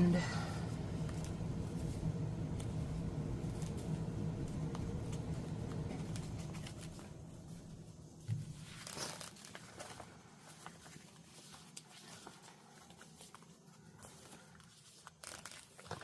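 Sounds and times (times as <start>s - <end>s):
low hum: 0.0s - 10.0s
paper rustling: 0.4s - 16.0s.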